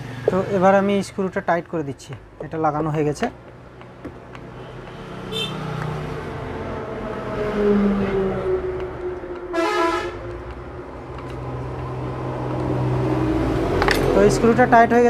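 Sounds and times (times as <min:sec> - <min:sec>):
vehicle horn honking: 0:05.3 - 0:05.7, 0:09.5 - 0:10.2.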